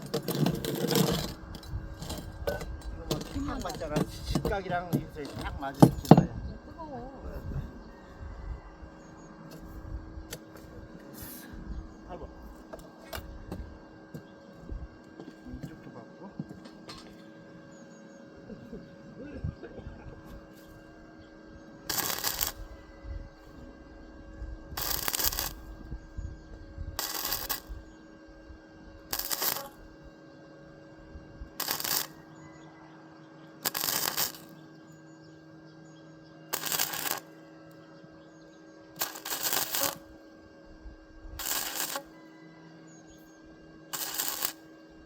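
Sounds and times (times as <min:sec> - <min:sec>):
arc welder crackling: 0:00.0 - 0:06.4, 0:19.6 - 0:30.1, 0:30.7 - 0:32.6, 0:33.6 - 0:35.0, 0:36.5 - 0:37.9, 0:38.6 - 0:40.2, 0:41.4 - 0:42.2, 0:43.9 - 0:45.0
steady machine hum: 0:00.0 - 0:45.0.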